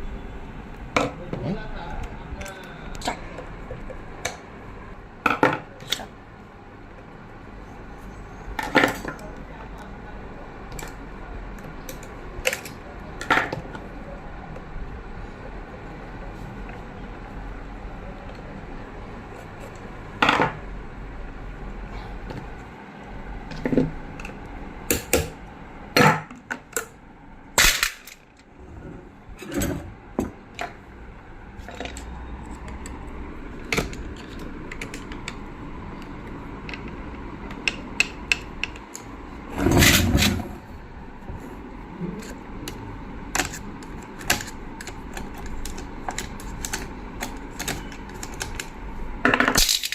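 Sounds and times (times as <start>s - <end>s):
metal tools clicking and tapping: 36.7s - 39.1s
metal parts clattering: 49.4s - 49.9s.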